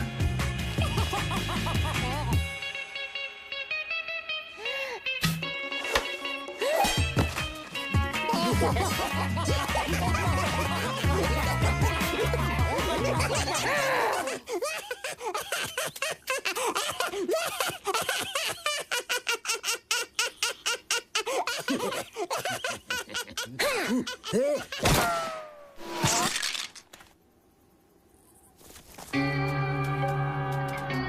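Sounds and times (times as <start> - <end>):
cartoon crashes: 24.8 - 26.8.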